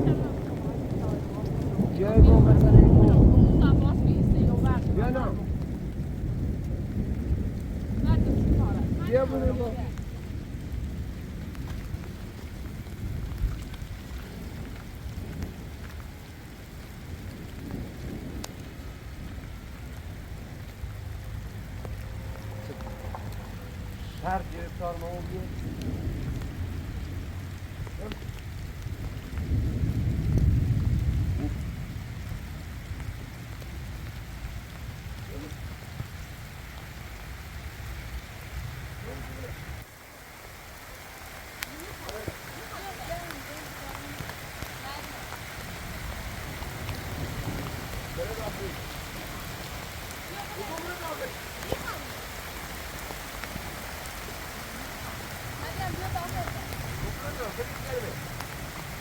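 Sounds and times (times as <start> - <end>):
deep low rumble: 0.0 - 39.9
heavy rain falling: 0.0 - 59.0.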